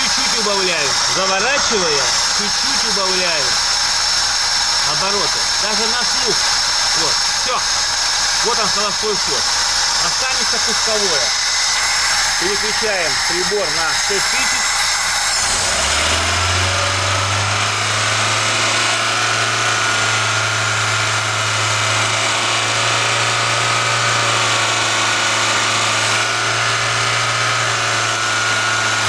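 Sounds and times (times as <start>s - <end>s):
car engine fast idle: 0.0s - 12.4s
carburettor intake noise: 0.0s - 22.1s.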